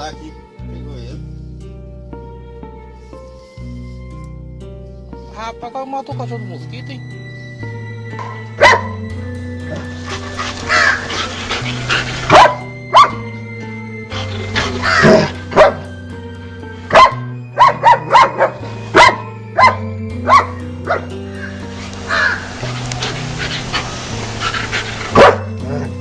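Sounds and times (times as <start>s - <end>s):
background music: 0.0s - 26.0s
dog barking: 8.6s - 9.0s, 9.7s - 13.2s, 14.6s - 15.9s, 16.9s - 22.4s, 25.1s - 25.9s.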